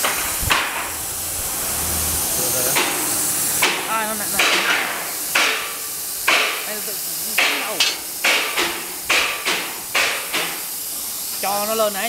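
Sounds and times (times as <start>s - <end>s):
sharp knocks: 0.0s - 1.0s, 2.7s - 6.7s, 7.4s - 10.6s
plasma cutter hissing: 0.0s - 12.0s.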